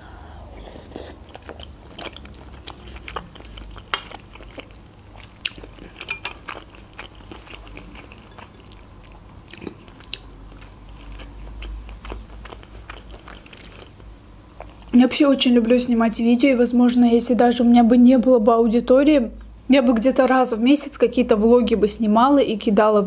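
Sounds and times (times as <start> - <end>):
close chewing with mouth clicks: 0.6 - 15.0.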